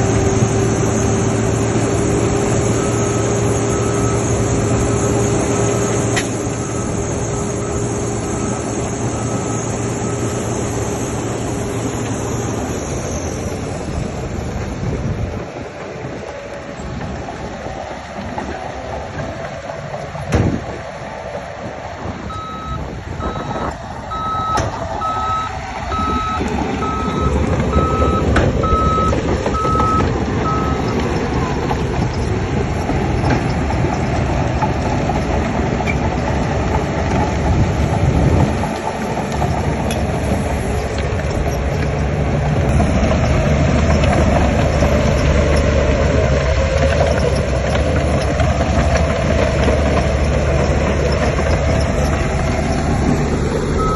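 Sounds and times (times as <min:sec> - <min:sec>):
heavy construction machinery running: 0:00.0 - 0:53.9
reversing alarm beeps: 0:02.6 - 0:04.9, 0:05.6 - 0:10.5, 0:22.3 - 0:30.9.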